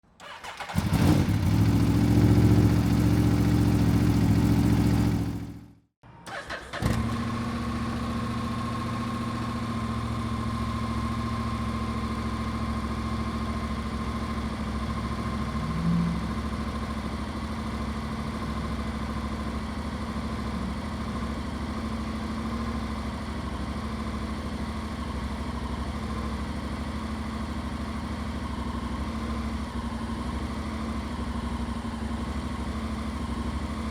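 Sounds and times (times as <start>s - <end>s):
motorcycle engine running: 0.2s - 5.9s, 7.0s - 33.9s.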